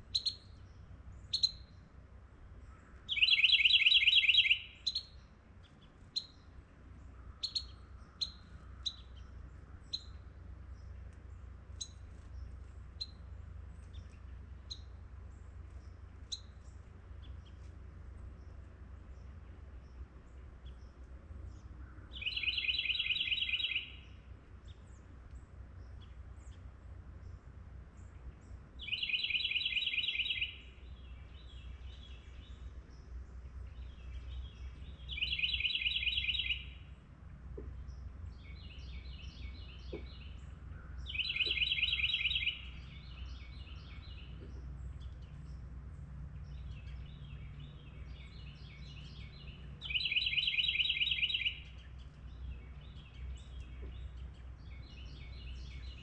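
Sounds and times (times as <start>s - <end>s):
songbird trilling: 0.0s - 1.9s, 2.7s - 6.5s, 7.1s - 10.2s, 11.8s - 12.0s, 12.9s - 15.0s, 15.8s - 17.6s, 20.6s - 25.0s, 28.0s - 37.0s, 37.6s - 45.6s, 46.4s - 56.0s
low background rumble: 4.7s - 22.5s, 23.3s - 29.6s, 30.5s - 50.8s, 51.5s - 56.0s.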